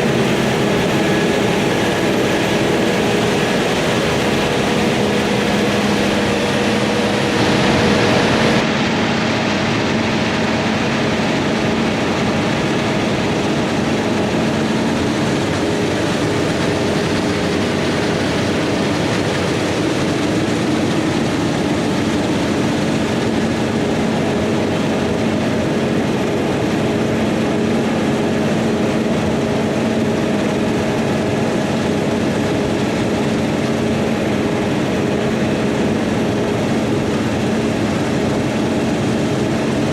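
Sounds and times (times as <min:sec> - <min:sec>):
diesel farm machinery droning: 0:00.0 - 0:39.9.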